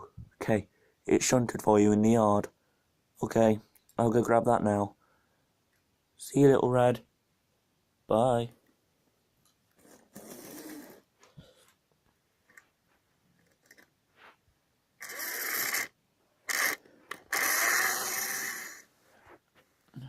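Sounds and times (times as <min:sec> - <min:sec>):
model train whirring and rattling: 0:15.0 - 0:15.9, 0:16.5 - 0:18.8.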